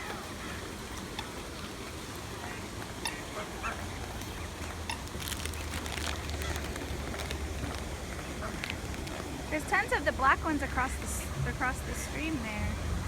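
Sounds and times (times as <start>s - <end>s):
waterfowl honking: 0.0s - 6.8s
wind rumble on microphone: 3.9s - 13.0s.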